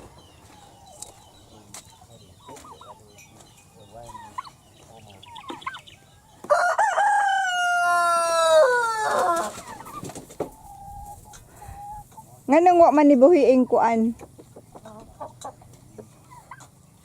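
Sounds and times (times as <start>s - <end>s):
chickens clucking softly: 0.0s - 6.5s, 7.3s - 12.5s, 14.1s - 17.0s
rooster crowing: 6.4s - 9.5s.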